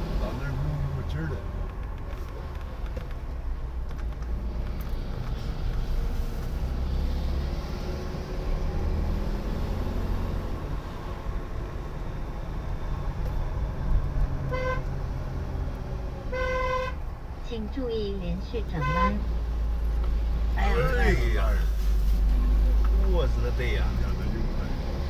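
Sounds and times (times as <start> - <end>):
car driving rumble: 0.0 - 25.0
car horn toot: 14.5 - 14.9, 16.3 - 17.0, 18.7 - 19.3.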